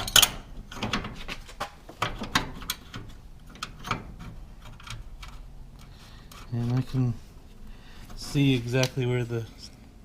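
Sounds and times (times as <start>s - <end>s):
metal bracket clack: 0.0s - 5.4s.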